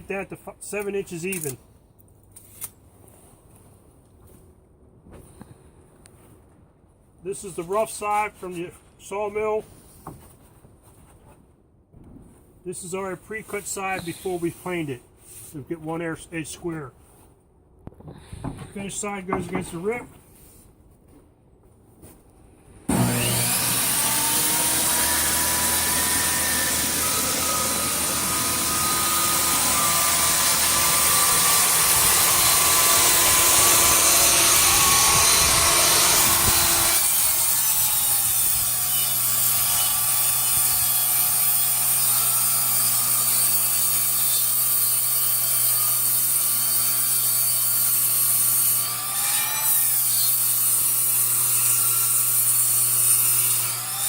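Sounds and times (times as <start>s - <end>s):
power saw ripping a board: 22.9s - 54.0s.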